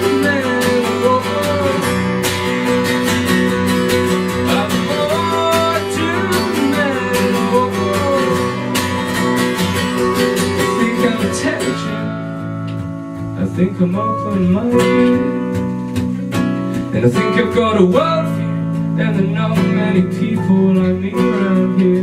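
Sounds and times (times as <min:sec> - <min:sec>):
sliding melody line: 0:00.0 - 0:12.7
strummed acoustic guitar: 0:00.0 - 0:22.0
sustained bass notes: 0:00.0 - 0:22.0.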